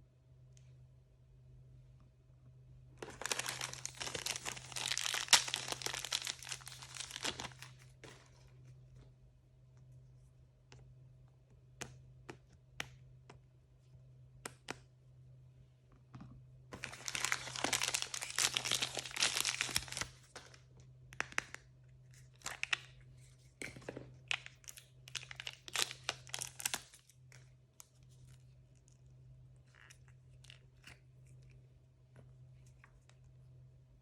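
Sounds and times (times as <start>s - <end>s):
packaging crinkling and tearing: 3.0s - 7.8s, 16.8s - 20.4s, 22.3s - 22.9s, 24.2s - 27.2s.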